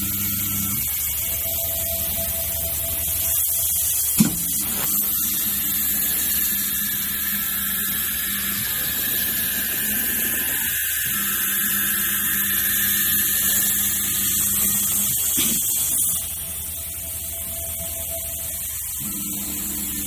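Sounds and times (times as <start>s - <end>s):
router motor whine: 0.0s - 20.0s.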